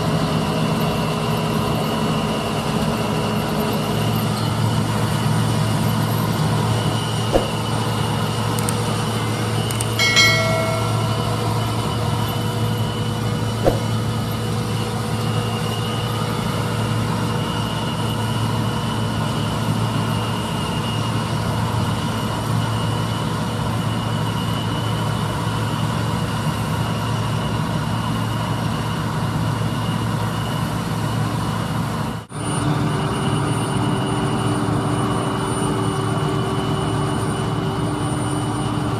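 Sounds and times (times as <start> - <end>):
diesel engine running: 0.0 - 38.9
short high tone: 10.0 - 11.6.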